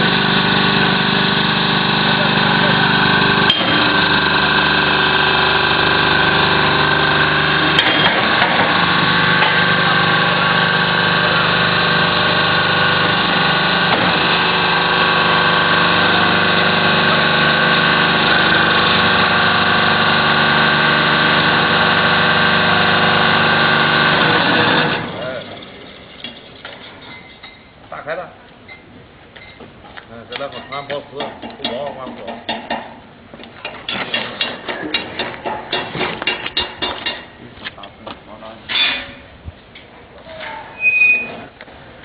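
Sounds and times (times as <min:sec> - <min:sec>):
baler motor hum: 0:00.0 - 0:26.2.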